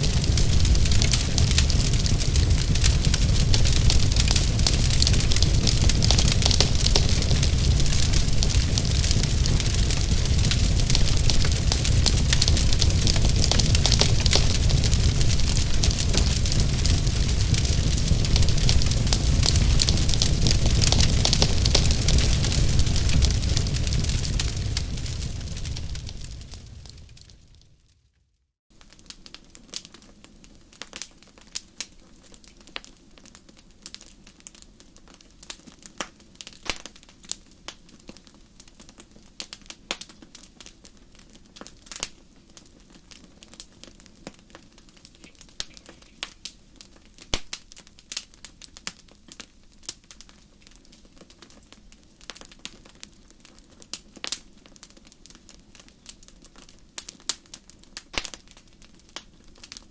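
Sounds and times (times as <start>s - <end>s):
low steady rush: 0.0s - 23.5s
wood fire crackling and popping: 0.0s - 28.0s, 28.7s - 59.9s.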